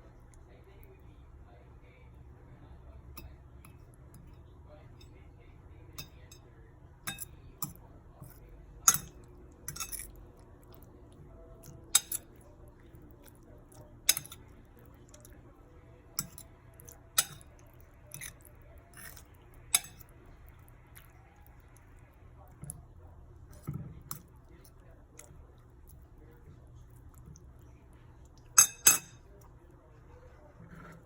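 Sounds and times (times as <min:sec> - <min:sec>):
fork clinking against bowl: 0:06.0 - 0:06.5, 0:07.1 - 0:10.9, 0:11.6 - 0:12.4, 0:13.3 - 0:14.5, 0:16.2 - 0:20.1, 0:28.5 - 0:29.4.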